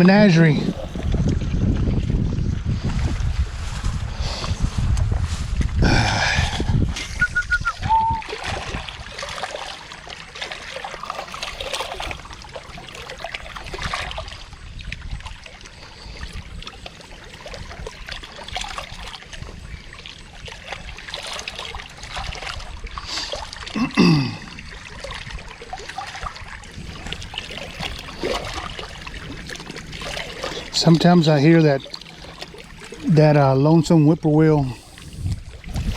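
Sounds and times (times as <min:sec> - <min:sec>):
water trickling and splashing: 0:00.0 - 0:35.9
short high chirp: 0:07.2 - 0:08.2.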